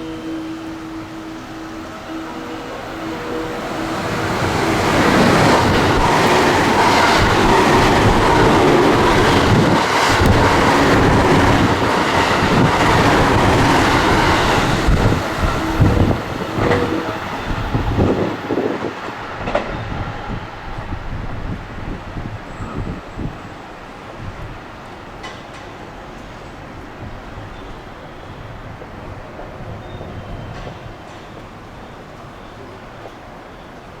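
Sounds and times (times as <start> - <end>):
train wheels rushing on rails: 0.0 - 34.0.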